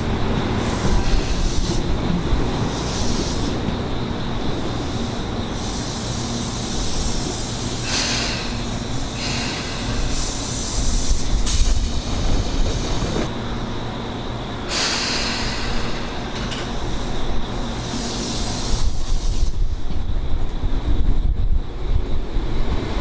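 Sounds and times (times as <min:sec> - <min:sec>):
electric train passing: 0:00.0 - 0:23.0
wind on microphone: 0:10.0 - 0:13.3, 0:18.6 - 0:23.0.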